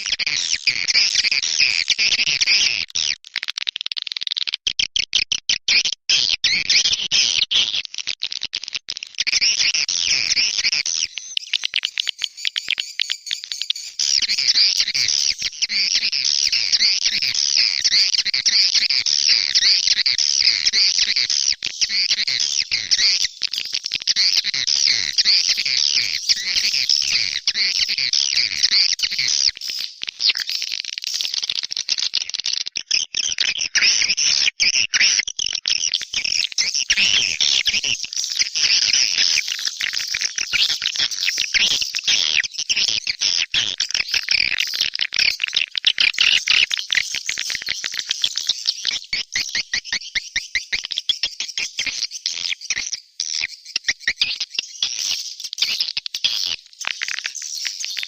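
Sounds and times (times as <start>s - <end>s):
swiftlets chattering twitter: 10.2s - 17.2s.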